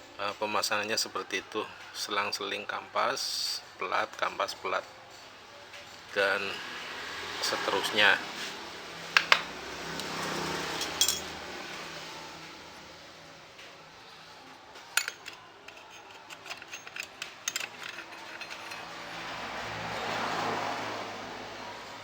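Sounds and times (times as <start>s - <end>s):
clutch plates clicking and clinking: 14.9s - 19.1s.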